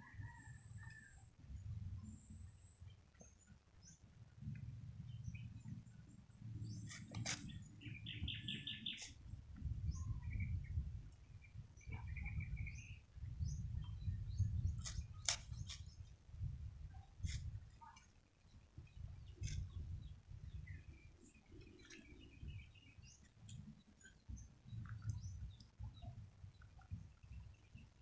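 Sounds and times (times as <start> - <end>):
small birds chirping: 5.0 - 16.1, 16.9 - 28.0.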